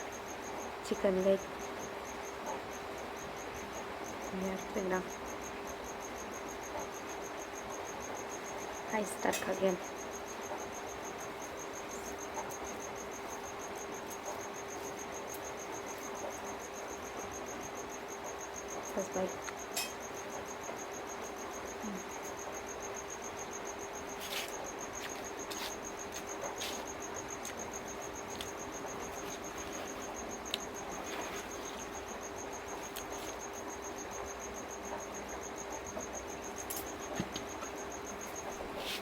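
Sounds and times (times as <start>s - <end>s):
cricket trilling: 0.0s - 39.0s.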